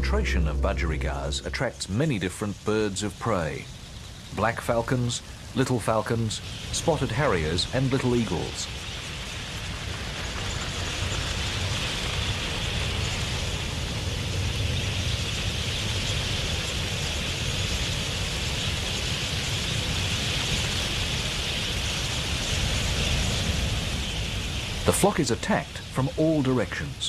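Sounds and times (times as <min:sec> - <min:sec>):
flock of budgerigars in flight: 0:03.4 - 0:27.0.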